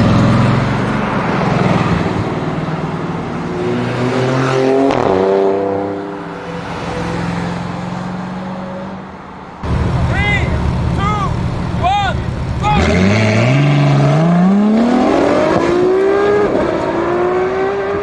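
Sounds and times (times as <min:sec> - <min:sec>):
car engine passing by: 0:09.6 - 0:18.0.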